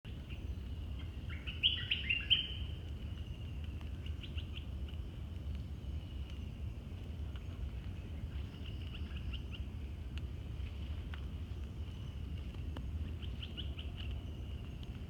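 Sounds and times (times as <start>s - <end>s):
songbird whistling: 1.4s - 2.6s.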